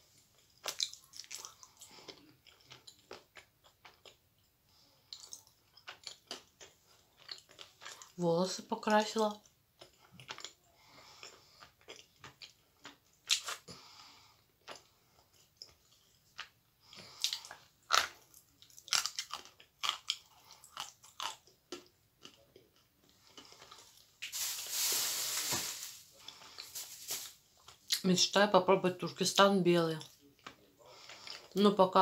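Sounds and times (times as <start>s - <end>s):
dry crunches of chewing clay: 0.4s - 4.2s, 5.0s - 8.2s, 9.8s - 13.8s, 14.6s - 24.1s
hissing rustle: 24.2s - 27.4s.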